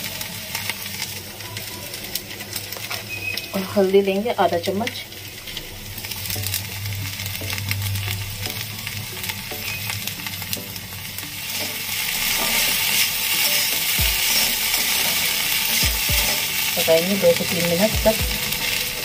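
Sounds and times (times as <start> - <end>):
okra sizzling in a pan: 0.0 - 19.0
metal spatula scraping a pan: 11.5 - 17.0.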